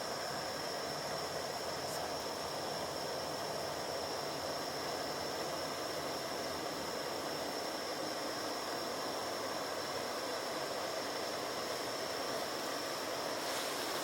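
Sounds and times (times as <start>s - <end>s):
even rushing hiss: 13.4s - 14.0s.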